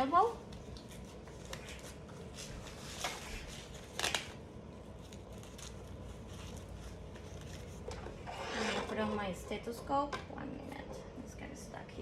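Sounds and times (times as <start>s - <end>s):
fabric rustles: 0.0s - 9.4s.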